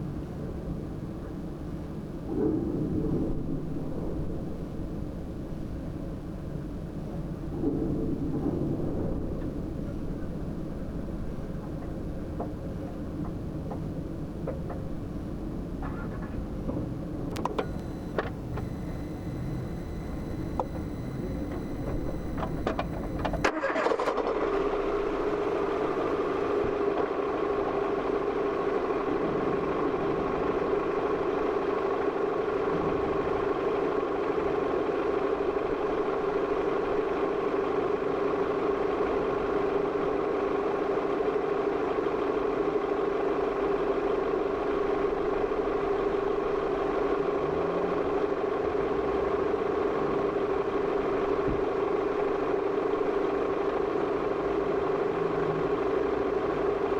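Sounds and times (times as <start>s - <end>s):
car engine starting and idling: 14.6s - 56.9s.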